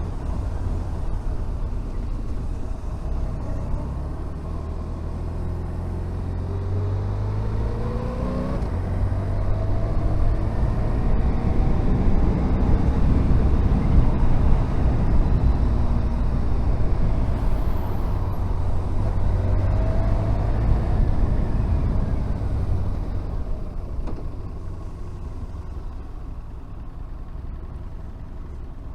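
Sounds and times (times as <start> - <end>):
motorcycle engine accelerating: 0.0 - 26.5
rushing wind noise: 8.2 - 24.0.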